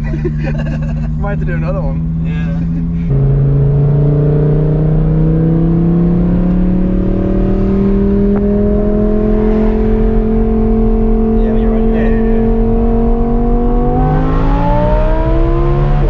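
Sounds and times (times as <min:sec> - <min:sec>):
car exhaust drone accelerating: 0:00.0 - 0:16.0.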